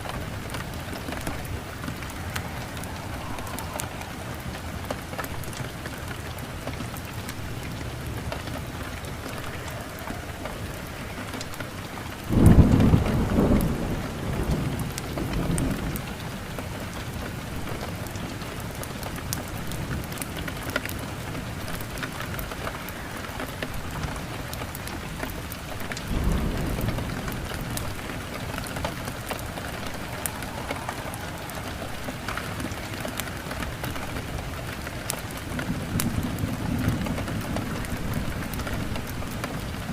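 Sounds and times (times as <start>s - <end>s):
thunder: 0.0s - 6.7s, 9.0s - 18.2s, 25.6s - 39.9s
rain falling: 0.0s - 39.9s.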